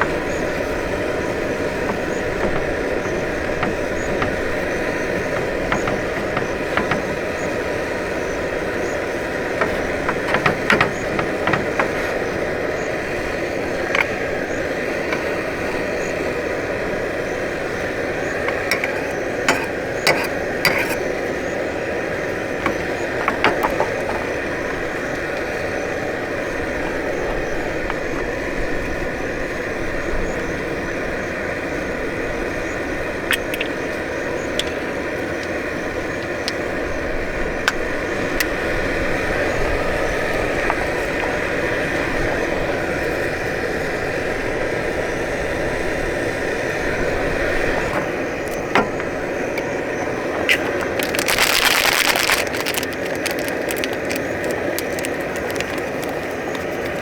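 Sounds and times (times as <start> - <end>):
clicks and rattles: 0.0 - 15.8, 18.2 - 25.9, 47.8 - 57.0.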